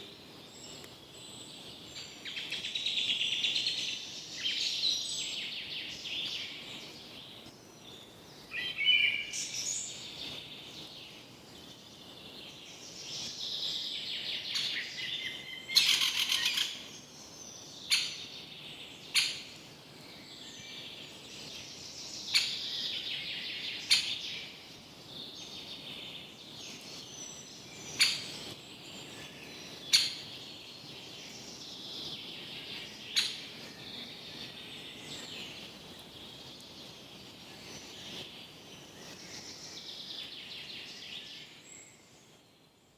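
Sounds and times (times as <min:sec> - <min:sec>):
forest birds calling and singing: 0:00.0 - 0:42.9.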